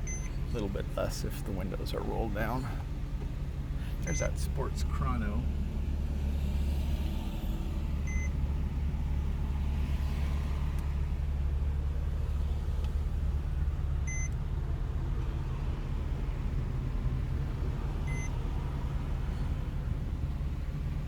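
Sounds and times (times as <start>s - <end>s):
electronic warning beep: 0.0s - 0.4s, 4.0s - 4.4s, 8.1s - 8.3s, 18.1s - 18.3s
car engine droning: 0.0s - 21.0s.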